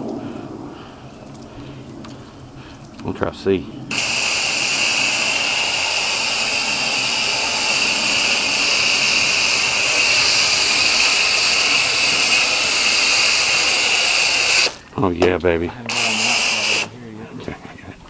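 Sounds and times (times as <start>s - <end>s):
spray gun spraying water: 3.9s - 14.8s, 15.8s - 16.9s.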